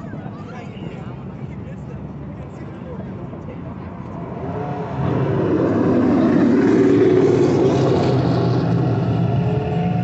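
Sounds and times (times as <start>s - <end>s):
race car engine running loud: 3.8s - 10.0s.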